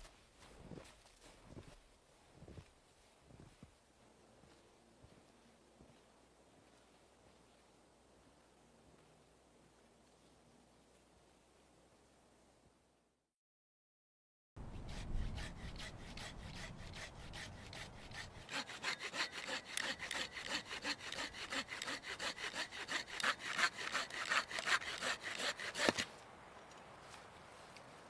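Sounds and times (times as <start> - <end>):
hand saw cutting wood: 14.6 - 26.1
sharp crack of wood: 23.2 - 26.2.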